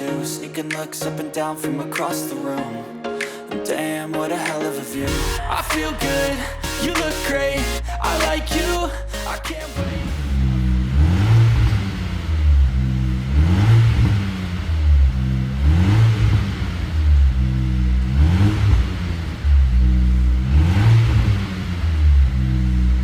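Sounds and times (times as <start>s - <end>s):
car exhaust revving: 10.1s - 23.0s.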